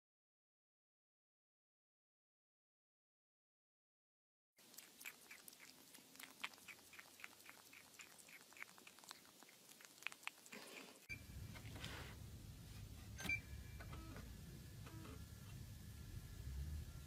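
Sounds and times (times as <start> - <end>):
kitten eating mouth clicks: 4.6 - 11.7
low steady hum: 4.6 - 17.0.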